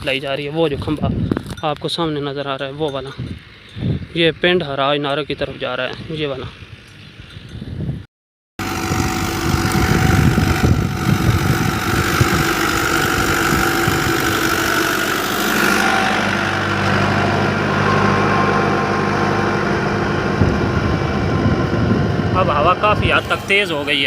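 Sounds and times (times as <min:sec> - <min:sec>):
tractor diesel engine running: 0:08.6 - 0:24.0.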